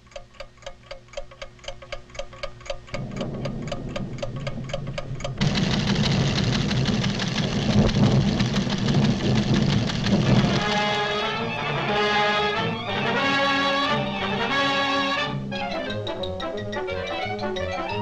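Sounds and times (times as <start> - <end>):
cartoon instruments ticking fast: 0.7 - 18.0
loud dense rumble: 3.0 - 14.5.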